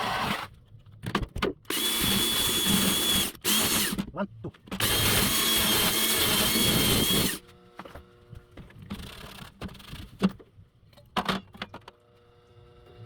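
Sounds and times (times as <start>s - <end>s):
power drill: 1.7s - 4.0s, 4.8s - 7.4s.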